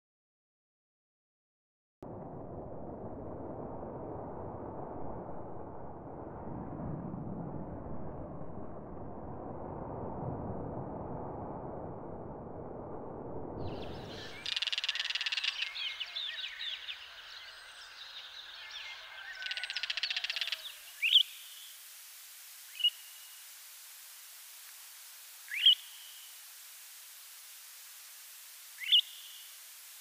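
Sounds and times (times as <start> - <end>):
low rumbling noise: 2.0 - 28.8
loud rising bird calls: 13.6 - 21.8, 25.5 - 26.3, 28.8 - 29.5
bird chirps and rattling calls: 14.1 - 17.2, 18.1 - 21.2.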